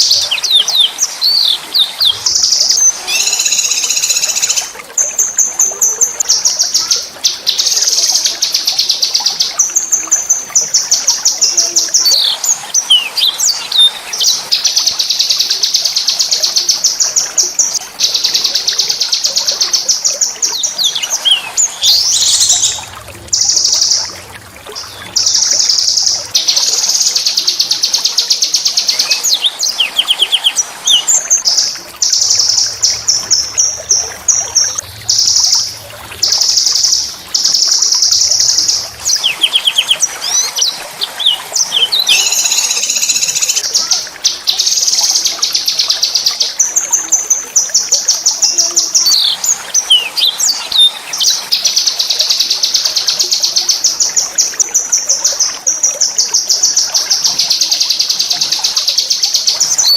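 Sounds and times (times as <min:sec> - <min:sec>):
songbird trilling: 0:00.0 - 0:04.8, 0:36.2 - 0:43.7.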